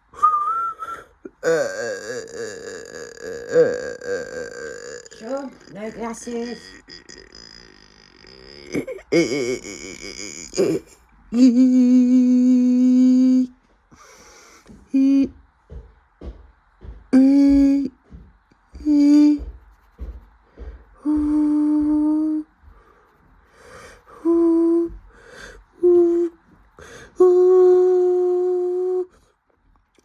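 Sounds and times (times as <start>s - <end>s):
person humming: 0.0s - 15.4s, 17.1s - 29.2s
soft low taps: 14.6s - 25.7s.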